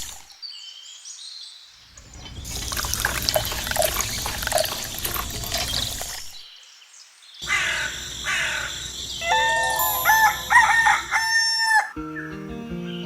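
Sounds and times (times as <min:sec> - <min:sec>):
rooster crowing: 0:07.4 - 0:12.0
background music: 0:09.2 - 0:13.0.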